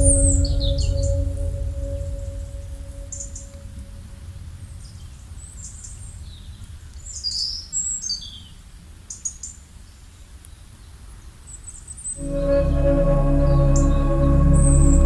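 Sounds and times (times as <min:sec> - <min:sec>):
low background rumble: 0:00.0 - 0:04.3, 0:12.2 - 0:15.0.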